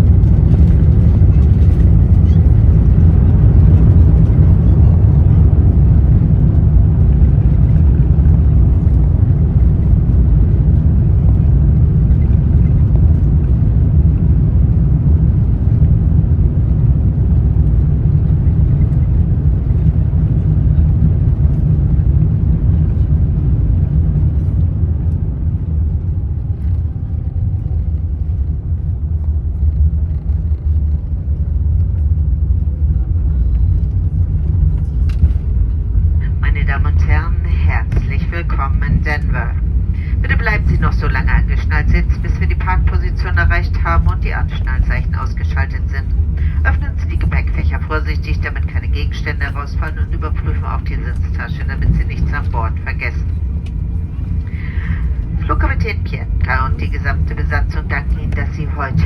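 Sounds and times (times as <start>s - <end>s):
aircraft cabin rumble: 0.0s - 59.0s
jet engines whining down: 0.0s - 59.0s.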